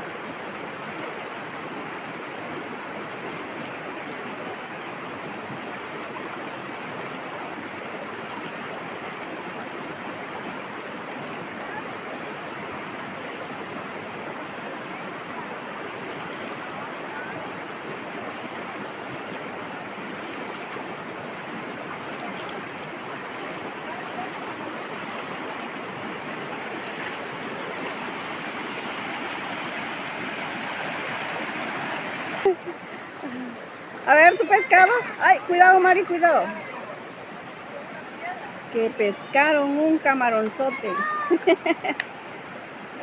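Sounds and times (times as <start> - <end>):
river water rushing: 0.0 - 43.0.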